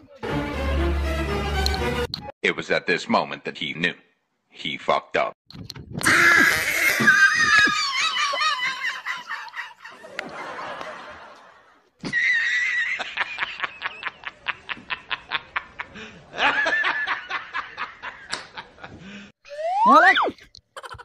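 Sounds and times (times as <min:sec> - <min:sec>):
laughter: 0:07.4 - 0:19.1.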